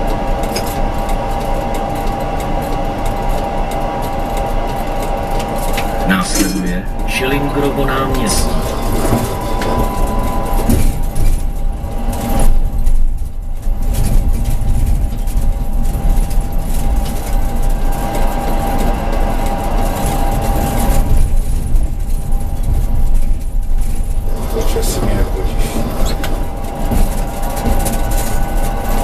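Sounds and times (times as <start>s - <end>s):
tram wheels rumbling on rails: 0.0s - 29.0s
thin steady whine: 1.2s - 13.0s.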